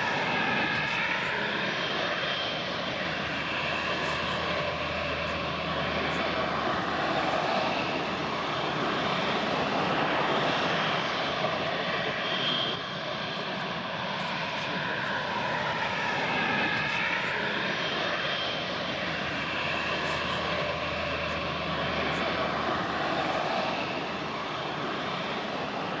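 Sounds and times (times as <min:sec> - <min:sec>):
jet engines roaring: 0:00.0 - 0:26.0
whining tone: 0:02.6 - 0:09.7, 0:18.8 - 0:24.8.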